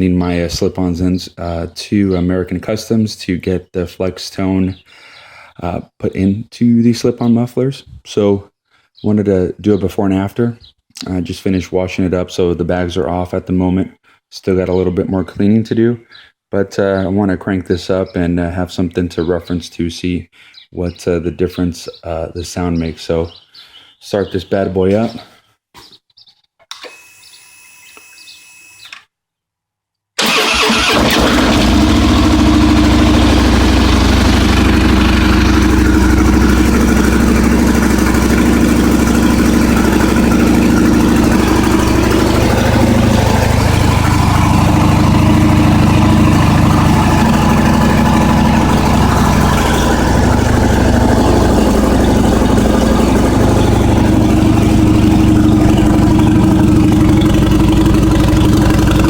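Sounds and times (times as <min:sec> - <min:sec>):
motorcycle engine idling: 0:31.4 - 0:59.0.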